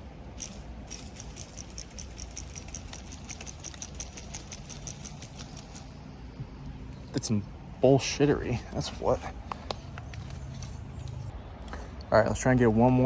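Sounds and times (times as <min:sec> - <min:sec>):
fishing reel clicking: 0:00.3 - 0:06.0.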